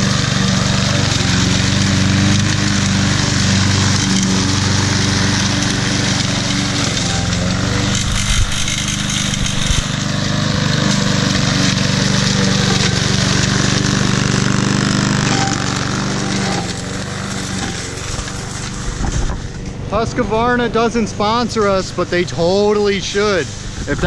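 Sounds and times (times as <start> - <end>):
push mower engine running: 0.0 - 24.0.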